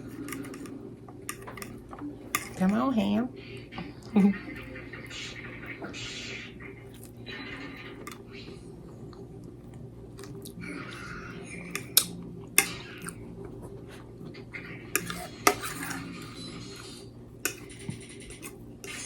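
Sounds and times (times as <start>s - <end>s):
cutlery scraping and clinking plate: 0.0s - 2.8s, 7.0s - 8.3s, 11.4s - 13.2s, 14.3s - 19.0s.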